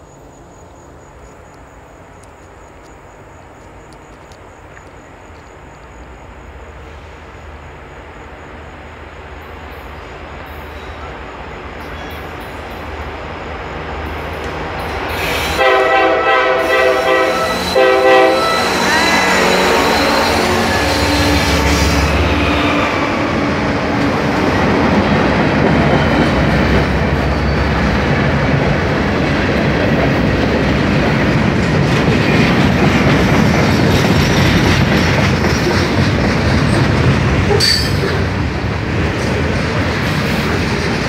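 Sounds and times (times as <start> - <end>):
diesel locomotive engine hum: 0.0 - 41.0
train wheels rumbling on rail: 0.0 - 41.0.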